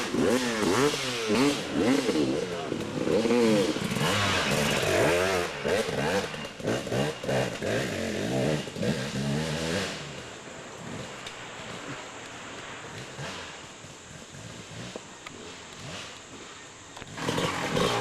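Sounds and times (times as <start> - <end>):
dirt bike engine revving: 0.0 - 12.1, 12.8 - 18.0.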